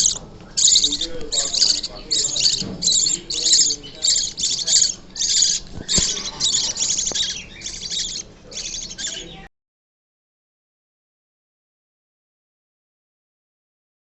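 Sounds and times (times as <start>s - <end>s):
budgerigar chicks begging calls: 0.0s - 9.5s.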